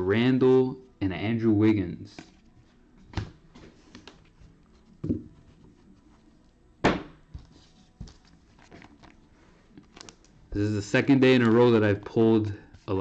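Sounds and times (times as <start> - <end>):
cards knocking on tabletop: 6.8 - 8.2.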